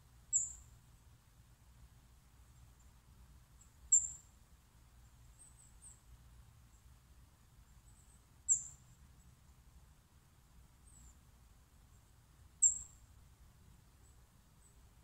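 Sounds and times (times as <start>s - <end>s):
small bird chirping: 0.3s - 0.8s, 3.6s - 4.4s, 5.0s - 6.1s, 7.6s - 9.4s, 10.8s - 11.2s, 11.9s - 13.1s.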